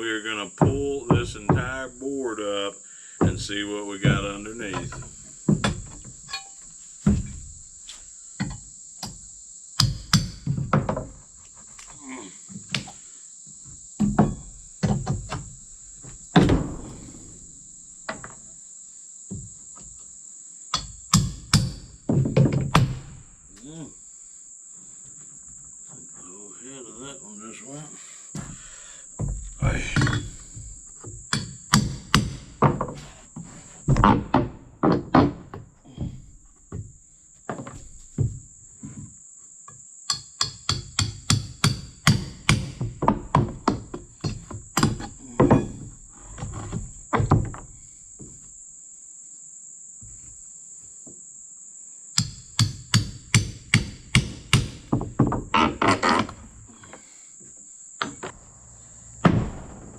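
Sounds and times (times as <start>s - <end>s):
high insect drone: 0.0s - 59.9s
hammer striking wood and nails: 0.6s - 1.8s, 3.2s - 7.4s, 9.8s - 11.2s, 14.0s - 15.5s, 20.7s - 23.2s, 29.2s - 33.0s, 33.9s - 36.9s, 40.1s - 45.9s, 52.2s - 56.4s.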